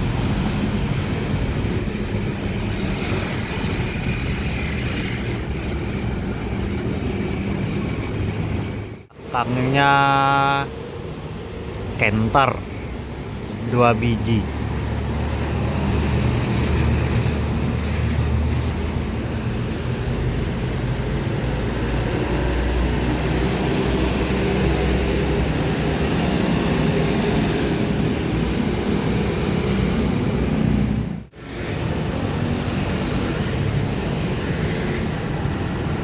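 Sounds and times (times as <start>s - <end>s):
truck diesel engine: 0.0s - 36.0s.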